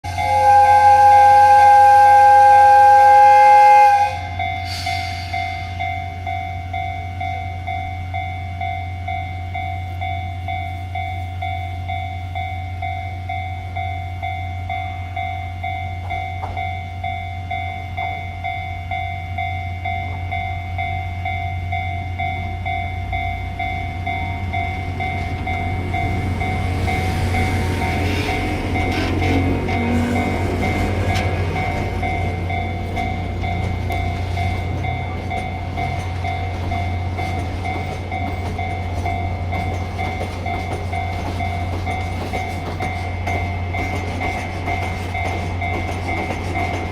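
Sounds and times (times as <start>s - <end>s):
locomotive horn chord: 0.0s - 5.0s, 24.2s - 32.5s
train rumble: 0.0s - 46.9s.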